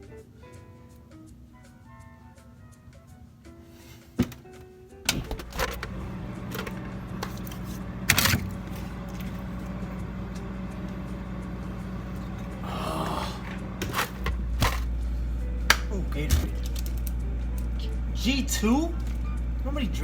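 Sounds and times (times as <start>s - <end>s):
refrigerator low hum: 0.0s - 20.0s
containers rattling: 5.1s - 9.8s, 13.4s - 14.9s.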